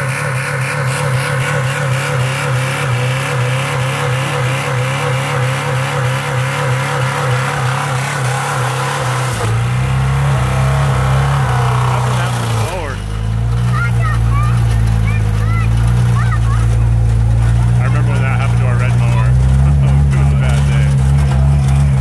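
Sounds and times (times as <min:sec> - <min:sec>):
car engine revving high: 0:00.0 - 0:22.0.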